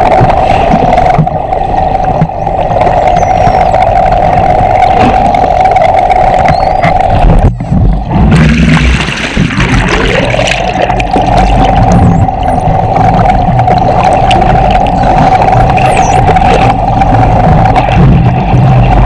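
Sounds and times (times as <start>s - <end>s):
underwater boat engine hum: 0.0s - 19.0s
dolphin whistle: 3.0s - 3.9s, 6.4s - 7.6s, 15.6s - 16.3s.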